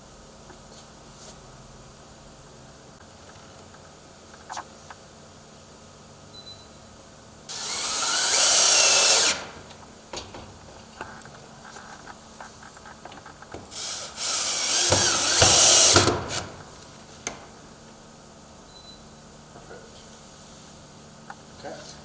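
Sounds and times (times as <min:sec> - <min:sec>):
power drill running: 0:07.5 - 0:10.3, 0:13.6 - 0:16.8.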